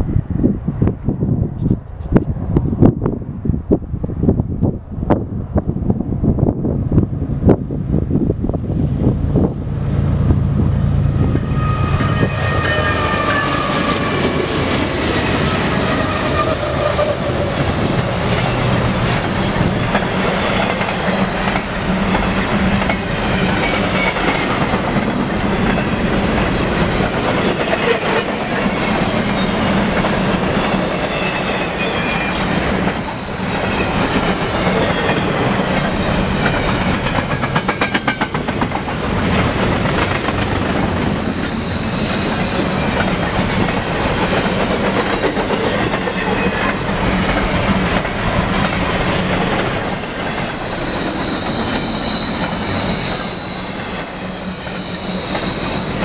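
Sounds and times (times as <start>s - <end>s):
diesel locomotive engine rumble: 0.0s - 56.0s
train wheels rolling: 4.3s - 56.0s
high-pitched wheel squeal: 11.2s - 14.4s, 29.4s - 35.4s, 40.2s - 43.1s, 49.2s - 56.0s.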